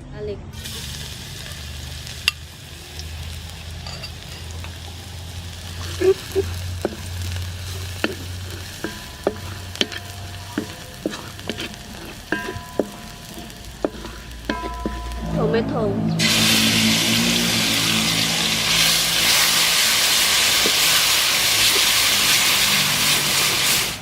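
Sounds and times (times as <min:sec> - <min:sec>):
garlic sizzling in oil: 0:00.6 - 0:15.5, 0:16.2 - 0:24.0
utensil scraping a pan: 0:05.8 - 0:15.6, 0:16.2 - 0:24.0.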